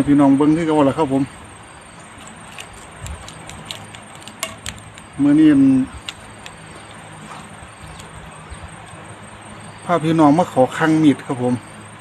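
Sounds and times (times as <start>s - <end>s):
high-pitched insect trill: 0.0s - 12.0s
light clicks and taps: 2.2s - 5.2s, 6.0s - 8.2s.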